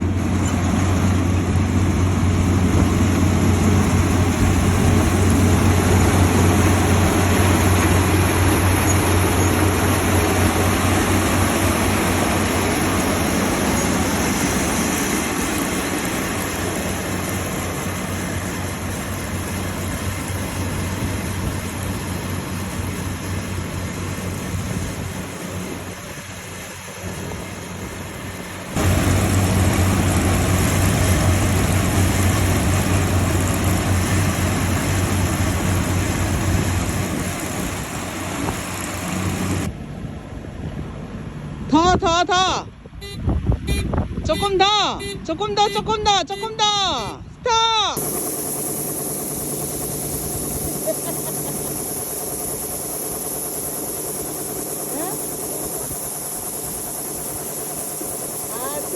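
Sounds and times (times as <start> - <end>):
combine harvester running: 0.0 - 58.9.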